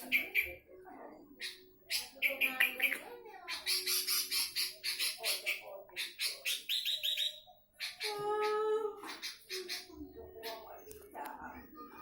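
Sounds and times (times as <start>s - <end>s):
bulbul singing: 0.0s - 0.6s, 1.4s - 10.8s.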